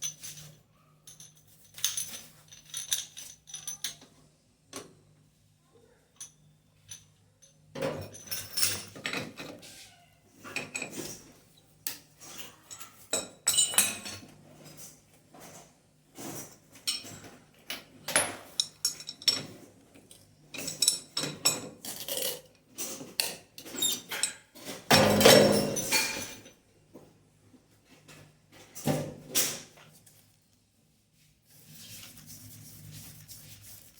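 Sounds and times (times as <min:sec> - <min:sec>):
metal tools clinking and knocking: 0:00.0 - 0:04.1, 0:06.2 - 0:09.6, 0:12.2 - 0:14.8, 0:16.2 - 0:26.6.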